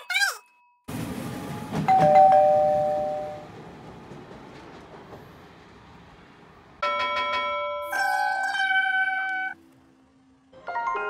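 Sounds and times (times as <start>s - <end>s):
electric train rumble: 0.9s - 7.8s, 9.5s - 11.0s.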